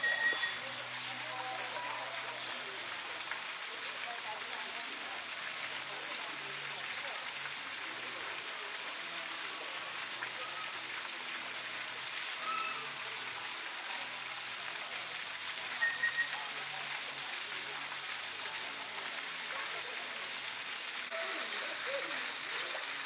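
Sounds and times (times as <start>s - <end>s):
short high chirps: 0.0s - 0.6s, 12.4s - 12.9s
faint background voices: 0.0s - 23.0s
rushing water: 0.0s - 23.0s.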